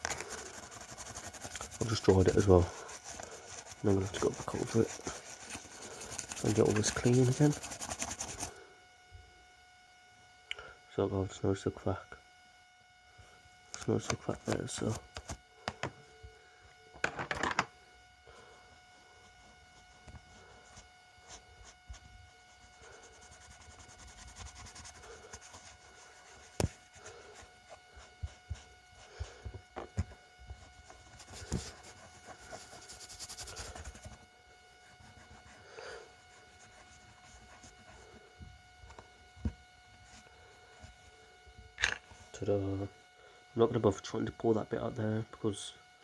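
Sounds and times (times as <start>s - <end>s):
plastic parts rubbed with cloth: 0.0s - 8.7s, 13.9s - 15.4s, 18.3s - 41.4s
faint steady whine: 0.0s - 46.0s.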